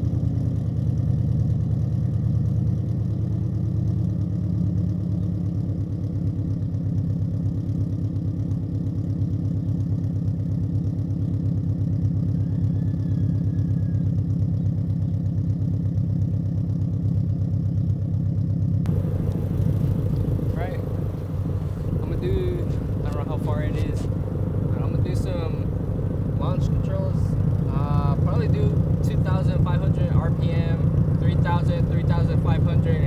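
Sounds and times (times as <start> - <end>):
car engine idling: 18.8 - 33.0.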